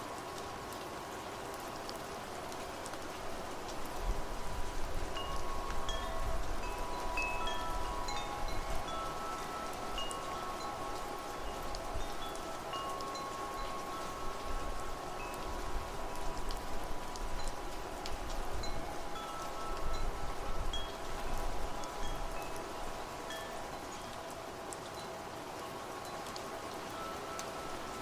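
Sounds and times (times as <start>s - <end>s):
steady rain: 0.0s - 28.0s
wind chimes ringing: 5.2s - 24.3s, 25.0s - 28.0s.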